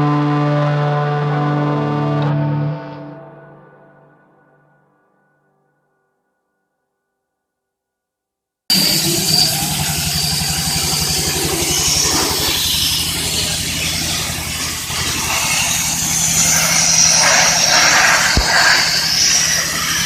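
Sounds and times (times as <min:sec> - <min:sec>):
air compressor pulsing: 0:08.7 - 0:20.0
air hissing: 0:08.7 - 0:20.0.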